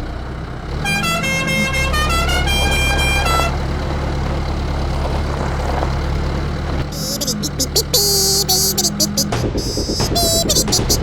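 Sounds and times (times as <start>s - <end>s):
low engine rumble: 0.0s - 11.0s
vehicle horn honking a tune: 0.8s - 3.6s, 6.9s - 11.0s.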